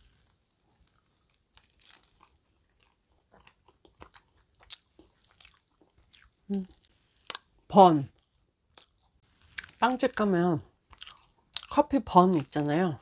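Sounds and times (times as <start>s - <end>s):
faint chewing mouth sounds: 0.1s - 7.5s, 10.9s - 12.6s.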